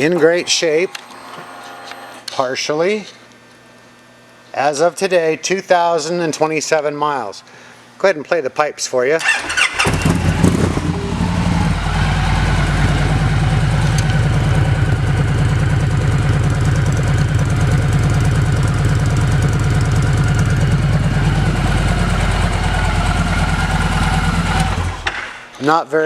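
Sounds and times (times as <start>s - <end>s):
motorcycle engine idling: 9.6s - 25.3s.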